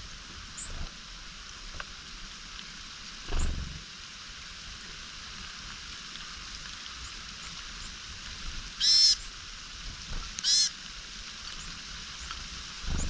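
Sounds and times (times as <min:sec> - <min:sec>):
background hiss: 0:00.0 - 0:13.0
bird harsh buzzy calls: 0:08.8 - 0:09.3, 0:10.4 - 0:10.8.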